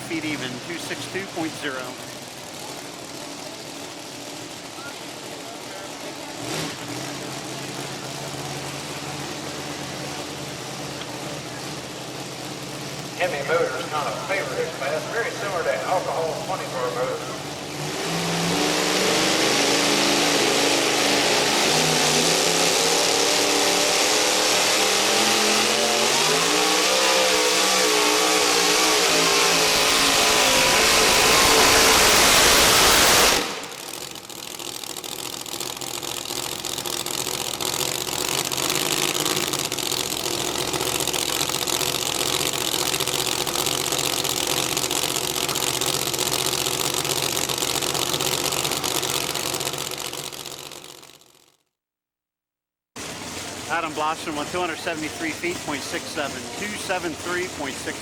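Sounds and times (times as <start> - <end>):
quieter engine running steadily: 0.0 - 18.5, 29.0 - 51.4, 53.0 - 58.0
truck engine at full throttle: 0.0 - 51.5, 53.0 - 58.0.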